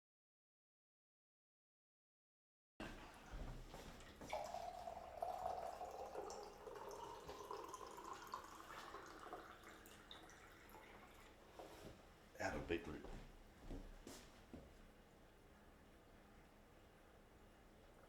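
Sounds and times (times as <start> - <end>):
liquid pouring into a container: 2.8 - 11.7.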